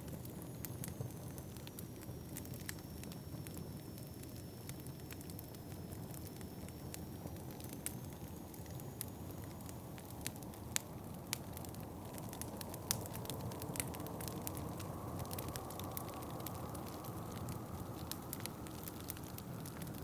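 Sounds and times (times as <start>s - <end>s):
wood fire crackling and popping: 0.0s - 20.0s
low rumble of wind: 9.5s - 20.0s.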